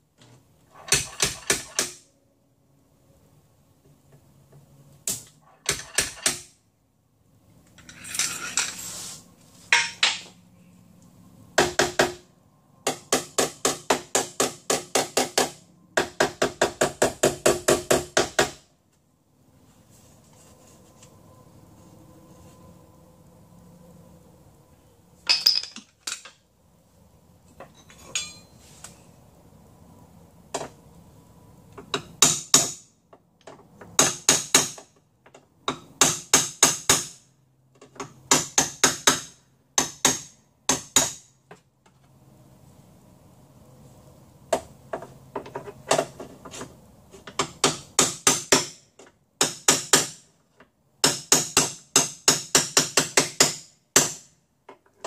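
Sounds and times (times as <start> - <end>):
hammer striking chisel on metal: 28.1 - 28.5, 31.9 - 32.8, 34.0 - 34.9, 35.7 - 37.2, 38.3 - 41.3, 47.3 - 48.8, 49.4 - 50.2, 51.0 - 54.3.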